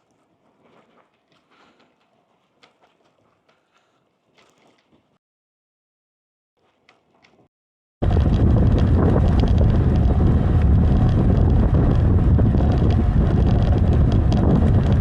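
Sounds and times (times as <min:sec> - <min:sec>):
wind buffeting the microphone: 0:08.0 - 0:15.0.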